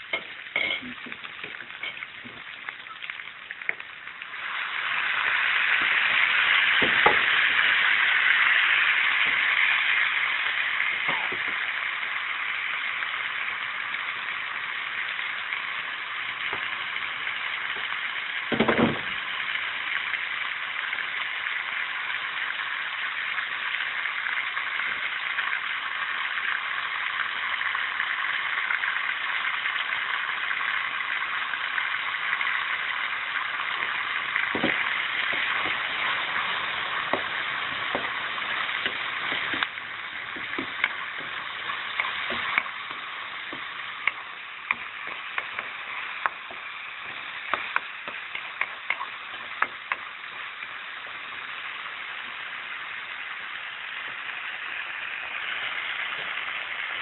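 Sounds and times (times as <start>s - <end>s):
food sizzling in hot oil: 0.0s - 57.0s
knocks on a wok: 18.5s - 19.2s.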